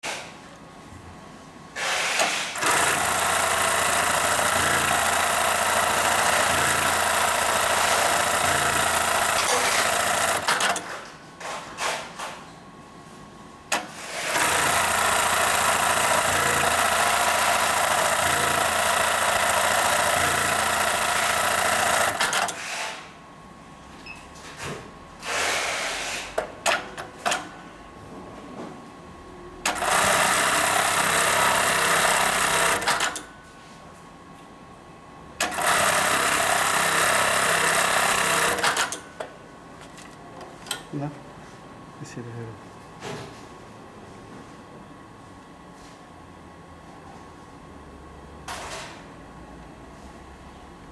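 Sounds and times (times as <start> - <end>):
sewing machine stitching: 1.8 - 11.0, 13.7 - 22.8, 29.7 - 33.2, 35.4 - 39.0.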